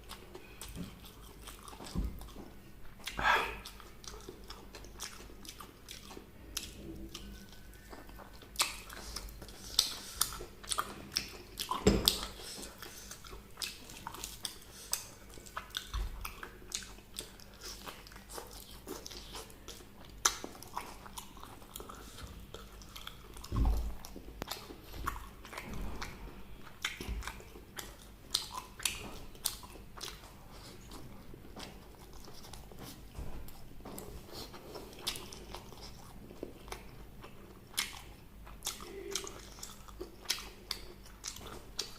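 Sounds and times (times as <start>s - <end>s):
mouth clicks while chewing: 24.0s - 30.3s.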